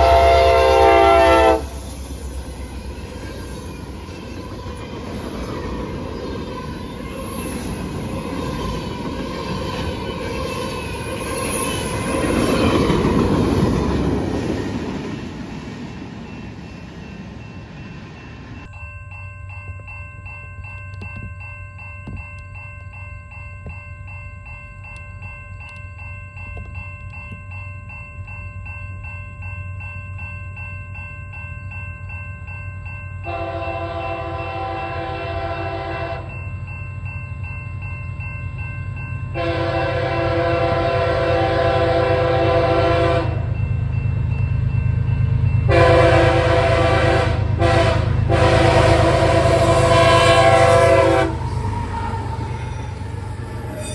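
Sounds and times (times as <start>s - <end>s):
locomotive air horn: 0.0s - 1.8s, 33.3s - 36.3s, 39.4s - 43.4s, 45.7s - 51.7s
train rumble: 0.0s - 18.8s, 24.6s - 53.9s
bell ringing: 16.2s - 41.8s, 48.8s - 53.9s.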